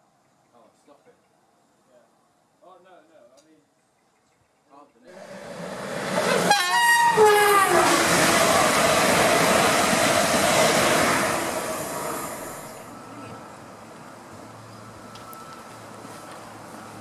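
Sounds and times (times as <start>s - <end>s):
rush of passing train: 5.1s - 17.0s
train two-tone horn: 6.1s - 13.4s.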